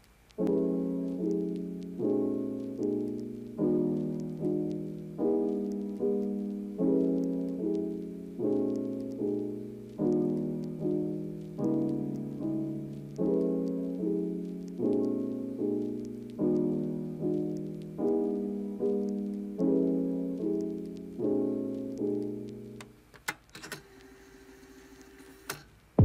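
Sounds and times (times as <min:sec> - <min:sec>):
slow piano chords: 0:00.0 - 0:23.0
sharp clicks: 0:02.6 - 0:16.7.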